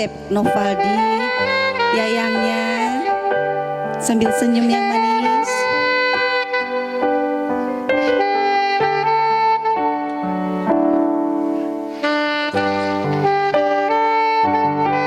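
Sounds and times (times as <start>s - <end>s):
saxophone melody: 0.0s - 15.0s.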